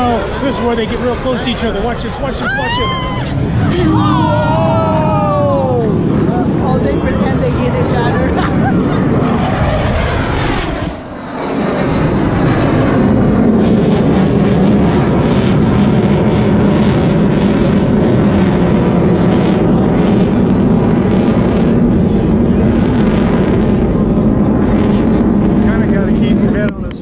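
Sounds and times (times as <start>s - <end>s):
aircraft engines flying past: 0.0s - 27.0s.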